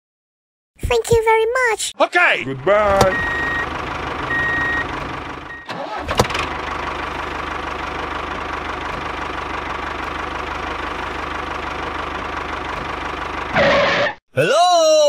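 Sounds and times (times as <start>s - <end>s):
engine starting and idling: 2.6s - 14.1s.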